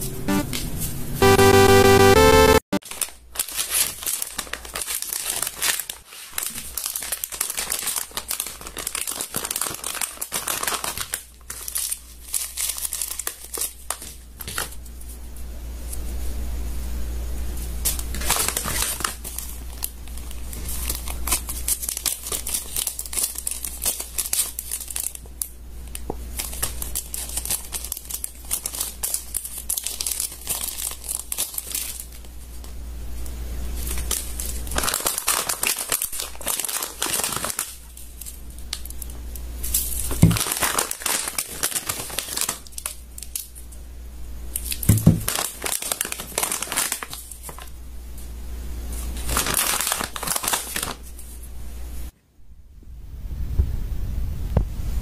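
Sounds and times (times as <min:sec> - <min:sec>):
slime crinkling and crackling: 0:02.8 - 0:14.8, 0:17.8 - 0:32.7, 0:33.7 - 0:43.6, 0:44.5 - 0:47.7, 0:48.9 - 0:51.3.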